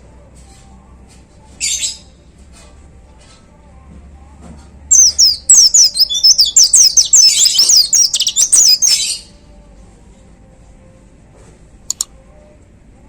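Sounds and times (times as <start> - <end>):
bird singing high sweeping notes: 4.9 - 9.3.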